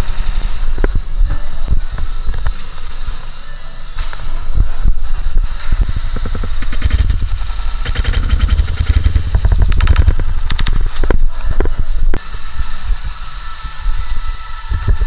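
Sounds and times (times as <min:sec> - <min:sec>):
airsoft guns firing bursts: 0:05.9 - 0:11.2.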